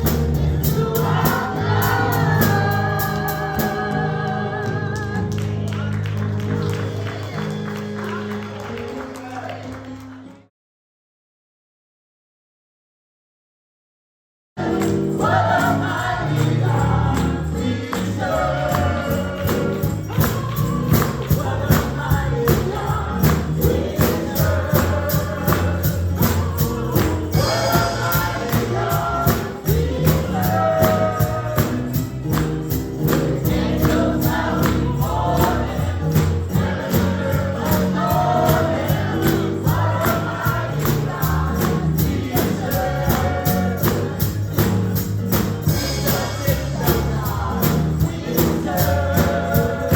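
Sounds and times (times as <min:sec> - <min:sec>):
band playing driving beat: 0:00.0 - 0:04.0, 0:14.6 - 0:49.9
choir singing gospel: 0:00.0 - 0:08.5, 0:14.6 - 0:49.9.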